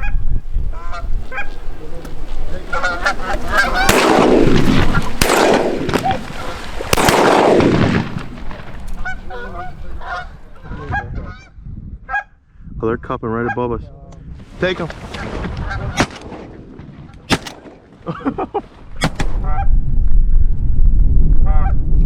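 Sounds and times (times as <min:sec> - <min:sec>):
geese honking: 0:00.0 - 0:11.5.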